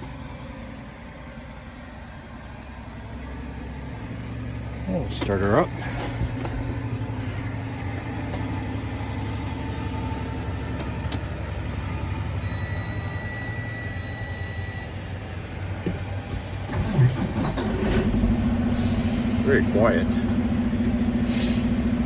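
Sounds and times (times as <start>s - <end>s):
diesel engine idling: 0.0s - 22.0s
steady electronic beep: 12.4s - 14.9s.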